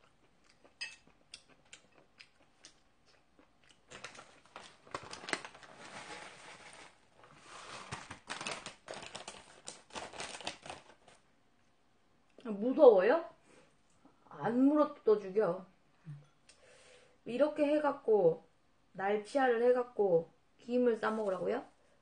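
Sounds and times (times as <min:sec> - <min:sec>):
person chewing and smacking: 0:00.0 - 0:04.5.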